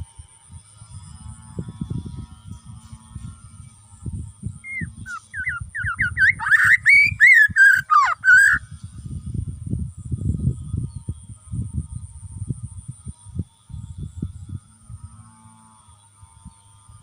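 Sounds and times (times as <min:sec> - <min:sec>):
bird singing whistled notes: 0:04.6 - 0:08.6.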